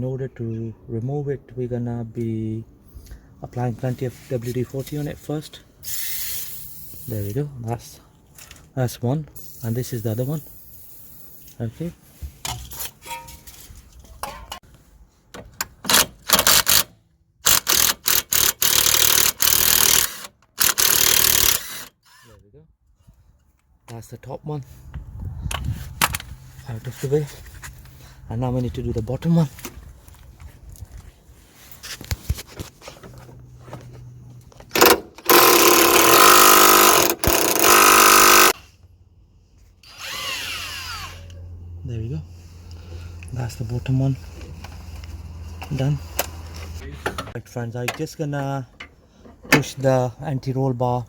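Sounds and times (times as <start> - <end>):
impact wrench running: 15.9 - 22.1, 34.7 - 38.6
impact wrench hammering: 34.7 - 38.6.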